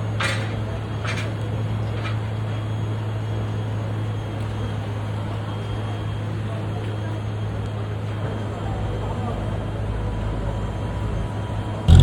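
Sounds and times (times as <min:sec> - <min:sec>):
street noise: 0:00.0 - 0:12.0
engine idling hum: 0:08.5 - 0:12.0.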